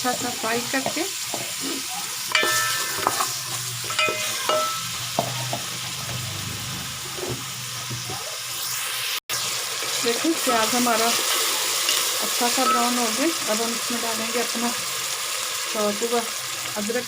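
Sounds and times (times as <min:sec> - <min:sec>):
onions sizzling in a pot: 0:00.0 - 0:17.0
spoon scraping and clinking on pot: 0:02.3 - 0:04.9.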